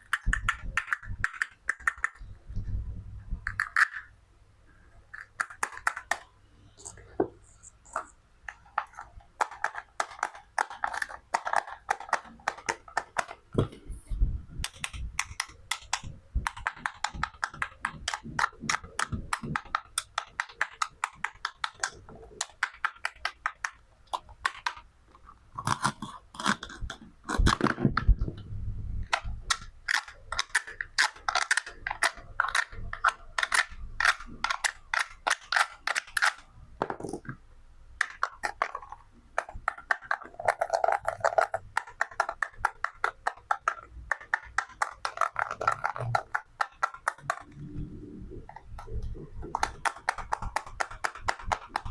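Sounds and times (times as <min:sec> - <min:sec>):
toy knife cutting toy food: 0:25.6 - 0:27.7, 0:29.1 - 0:36.4, 0:38.0 - 0:47.5.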